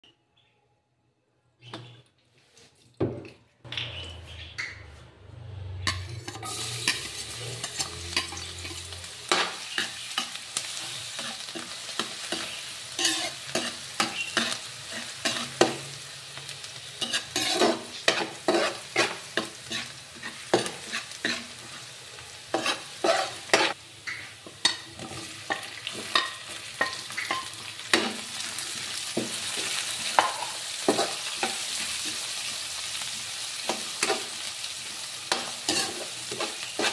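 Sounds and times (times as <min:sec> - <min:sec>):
garlic and onion sizzling in oil: 0:05.4 - 0:36.9
ladle scraping and clinking on wok: 0:05.9 - 0:15.8, 0:17.0 - 0:21.8, 0:35.3 - 0:36.9.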